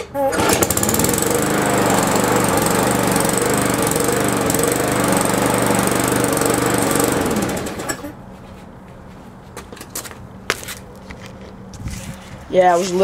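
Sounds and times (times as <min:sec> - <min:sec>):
small gas engine running: 0:00.1 - 0:08.2.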